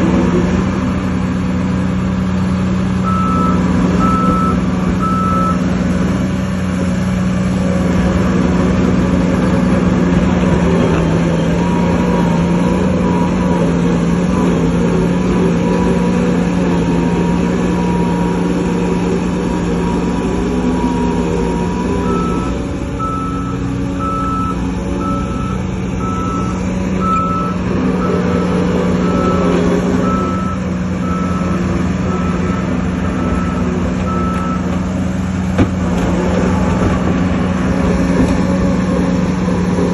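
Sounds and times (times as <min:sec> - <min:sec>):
diesel machinery running: 0:00.0 - 0:39.9
reversing alarm beeping: 0:03.0 - 0:05.7, 0:11.3 - 0:34.8.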